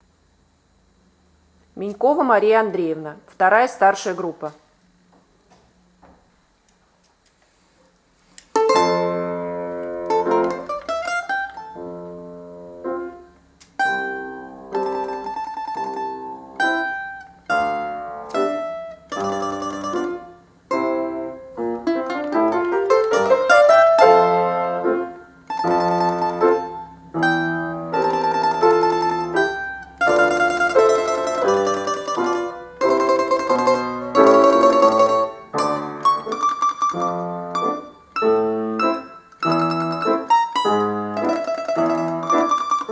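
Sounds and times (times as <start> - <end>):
plucked string folk tune: 8.4 - 42.9
sustained lower accompaniment: 8.7 - 42.9.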